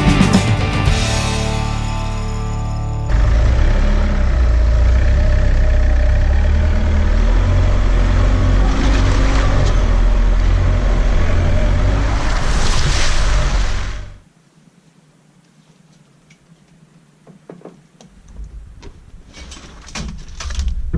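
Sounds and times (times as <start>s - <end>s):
vehicle engine and road rumble: 0.0s - 14.2s.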